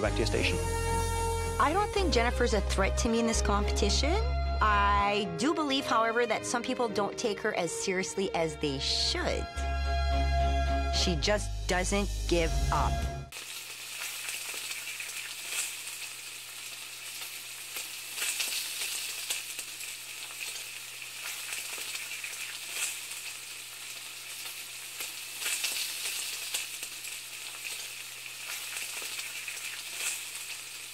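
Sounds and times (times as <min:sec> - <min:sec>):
food sizzling in a pan: 0:00.6 - 0:02.5, 0:13.3 - 0:30.9.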